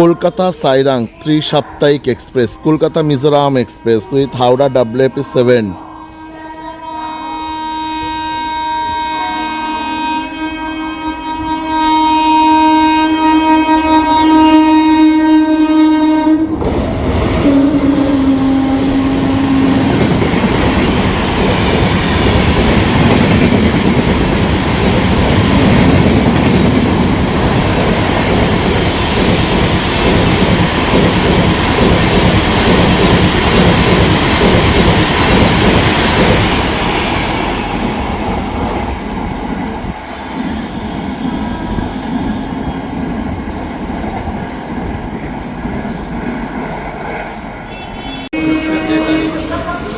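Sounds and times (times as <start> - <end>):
train horn blowing: 5.8 - 16.6, 17.3 - 20.4, 47.7 - 49.9
train wheels rolling and clattering: 18.9 - 48.2.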